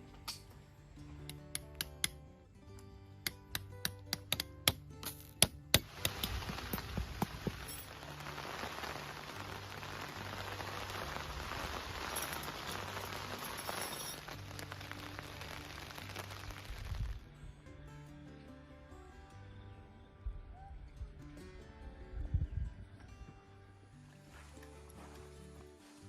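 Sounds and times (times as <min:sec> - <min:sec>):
soft music with plucked notes: 0:00.0 - 0:26.0
steady rain hiss: 0:05.8 - 0:17.2.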